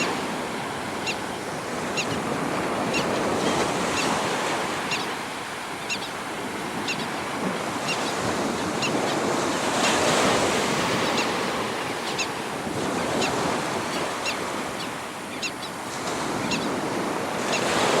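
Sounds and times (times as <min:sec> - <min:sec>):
surf washing onto beach: 0:00.0 - 0:18.0
wind buffeting microphone: 0:00.0 - 0:18.0.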